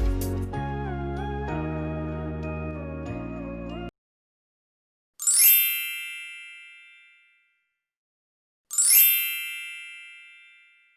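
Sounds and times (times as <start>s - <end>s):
bell-like ding: 8.7s - 10.9s.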